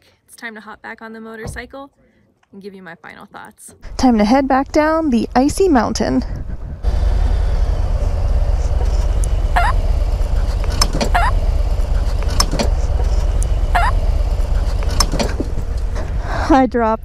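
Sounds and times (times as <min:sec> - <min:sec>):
motorcycle engine rumbling: 0:03.8 - 0:17.0
short high squeaks: 0:08.8 - 0:15.6.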